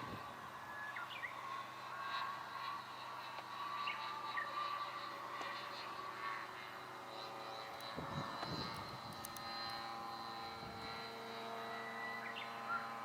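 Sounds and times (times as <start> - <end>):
wind rumbling on microphone: 0.0 - 0.4, 7.9 - 9.4
model airplane motor and propeller: 0.0 - 13.0.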